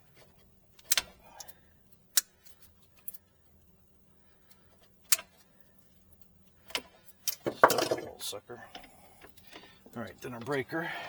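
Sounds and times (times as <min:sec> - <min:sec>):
pliers clicking on wire: 0:00.8 - 0:02.3.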